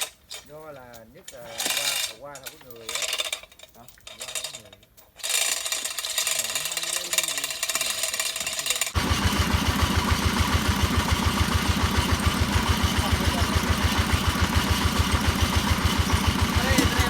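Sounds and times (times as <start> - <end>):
hammer drill running: 5.2 - 17.0
low pulsing machine noise: 9.0 - 17.0.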